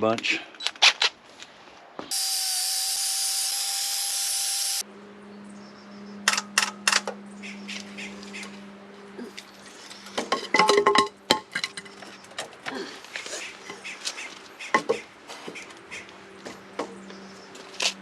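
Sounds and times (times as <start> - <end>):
power drill humming: 2.1 - 4.8.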